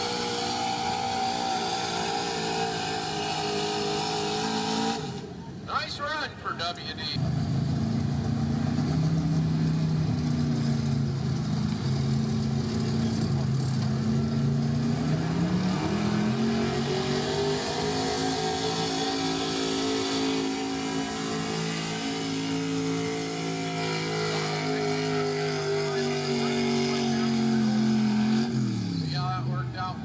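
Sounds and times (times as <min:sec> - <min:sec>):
pickup truck engine at high revs: 0:00.0 - 0:05.4, 0:07.2 - 0:30.0.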